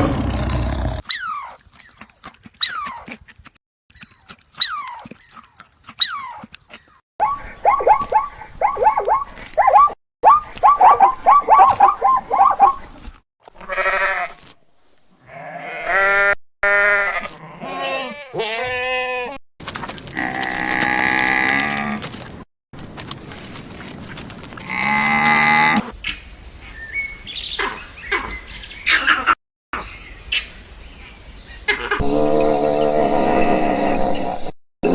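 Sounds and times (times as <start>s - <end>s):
sheep bleating: 13.6s - 14.4s, 15.3s - 19.4s.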